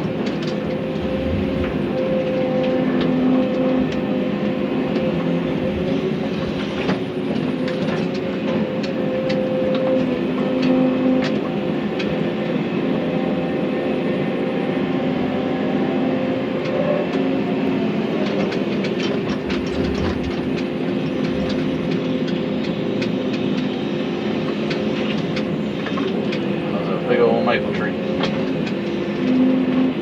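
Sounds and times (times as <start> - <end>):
excavator diesel engine running: 0.0 - 30.0
wood cracking and clatter: 0.2 - 3.1, 18.2 - 23.4.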